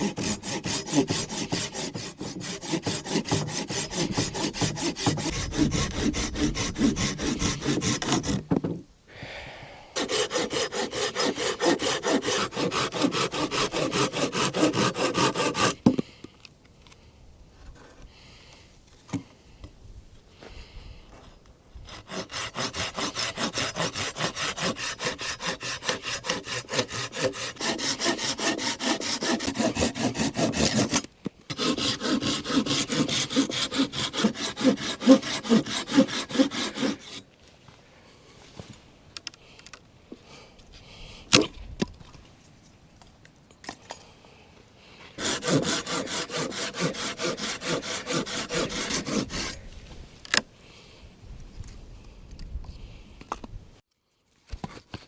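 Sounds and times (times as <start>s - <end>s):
hand saw cutting wood: 0.0s - 8.6s, 10.0s - 16.0s, 21.8s - 37.3s, 45.2s - 49.7s.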